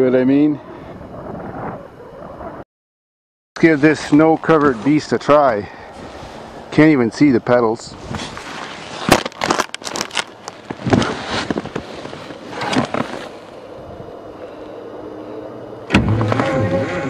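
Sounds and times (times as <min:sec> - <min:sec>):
knocks and scrapes of snow: 0:08.0 - 0:09.6, 0:10.6 - 0:13.5.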